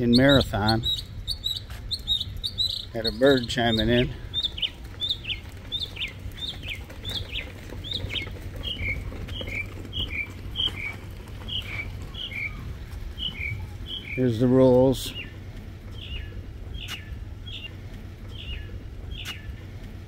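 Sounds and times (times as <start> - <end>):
songbird whistling: 0.1 - 3.4, 13.2 - 14.2, 16.0 - 19.6.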